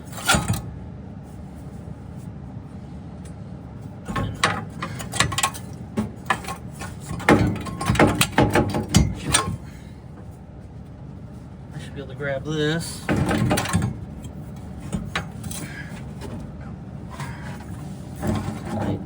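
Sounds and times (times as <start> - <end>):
metal tools clanking: 4.1 - 9.9, 12.5 - 19.0.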